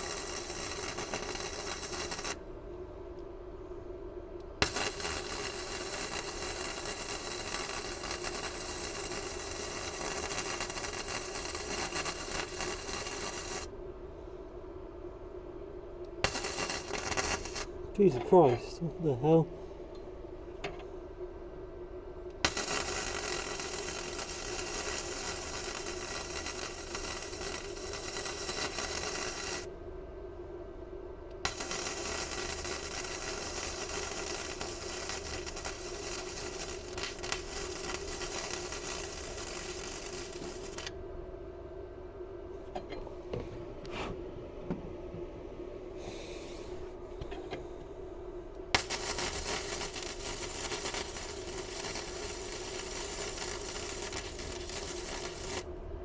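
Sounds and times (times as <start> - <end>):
welder arc crackling and hissing: 0.0 - 2.4, 4.4 - 13.7, 16.1 - 20.9, 22.3 - 29.7, 31.4 - 41.0, 45.9 - 47.6, 48.5 - 55.8
steady low hum: 0.0 - 56.0.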